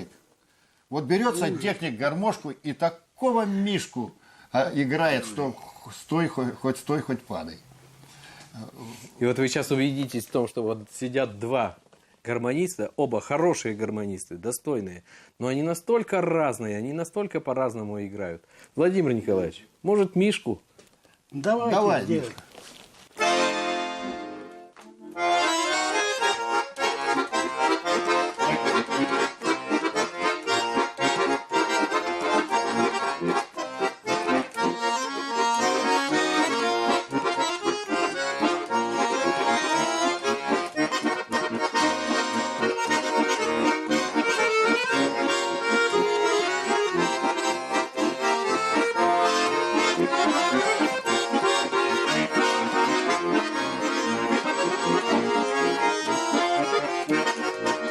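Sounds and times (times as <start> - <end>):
button accordion folk solo: 0.0 - 2.4, 23.1 - 57.9.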